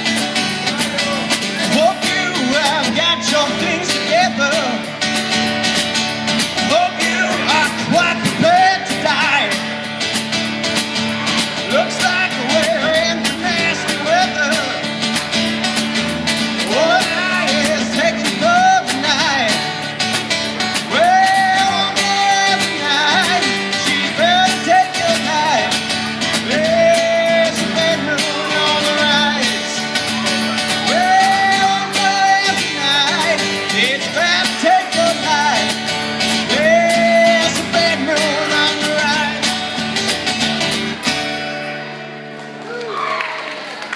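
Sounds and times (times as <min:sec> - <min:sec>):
strummed guitar: 0:00.0 - 0:42.7
person singing: 0:06.6 - 0:09.6, 0:16.6 - 0:19.8, 0:20.9 - 0:39.6.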